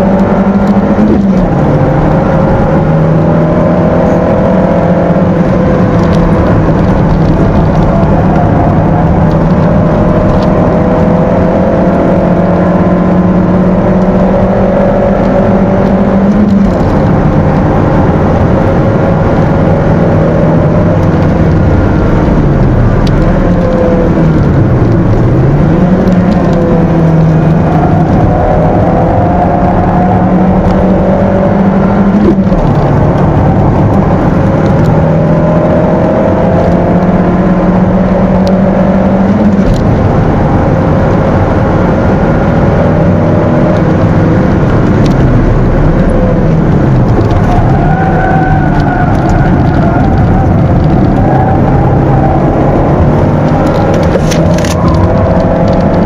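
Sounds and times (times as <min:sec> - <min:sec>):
car engine running hard: 0:00.0 - 0:56.0.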